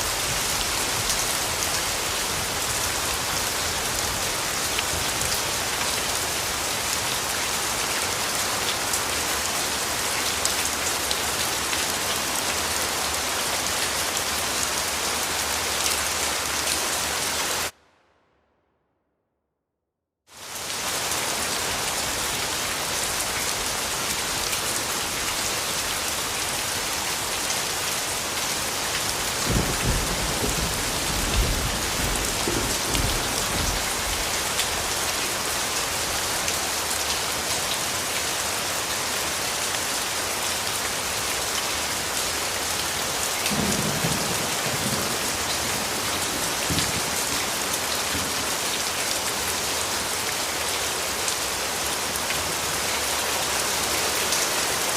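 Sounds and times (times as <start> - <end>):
steady rainfall: 0.0 - 17.8, 20.3 - 54.9
distant thunder rumbles: 29.5 - 34.2.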